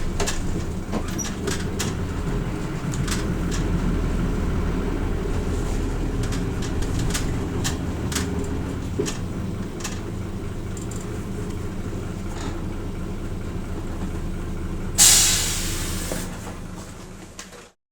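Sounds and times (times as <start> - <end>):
bus diesel engine running: 0.0 - 17.8
compressed air hiss: 15.0 - 16.3.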